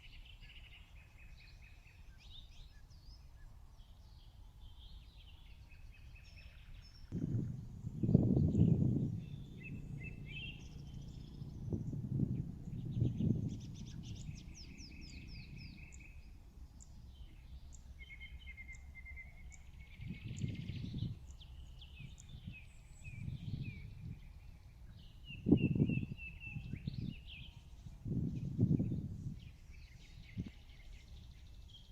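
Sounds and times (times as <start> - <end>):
birds chirping and trilling: 0.0 - 31.9
low rumbles: 7.1 - 18.0.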